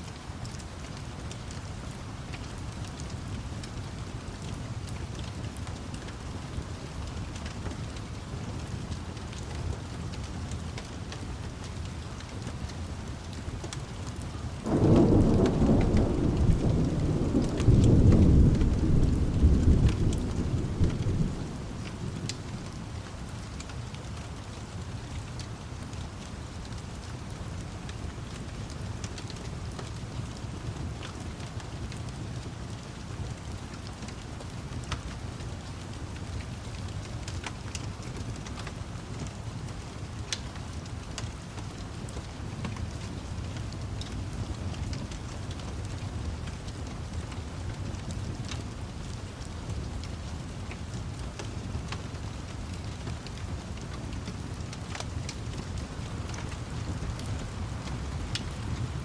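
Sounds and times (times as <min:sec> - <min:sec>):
steady rain: 0:00.0 - 0:59.0
fire crackling: 0:00.1 - 0:59.0
rain hissing: 0:14.2 - 0:23.5, 0:46.0 - 0:59.0
thunder rumbling: 0:14.7 - 0:22.8.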